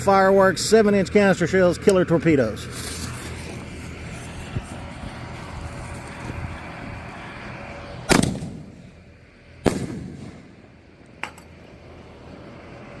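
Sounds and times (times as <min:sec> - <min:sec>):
firework booms: 0:08.1 - 0:08.8, 0:09.6 - 0:10.7.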